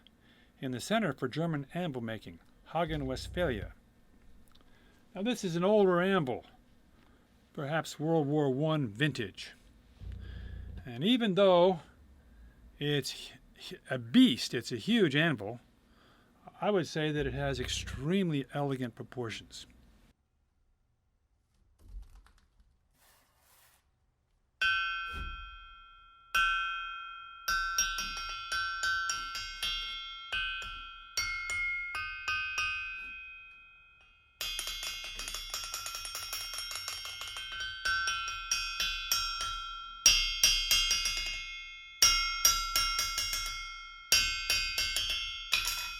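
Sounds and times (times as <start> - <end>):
hammer ringing on anvil: 24.6 - 45.9.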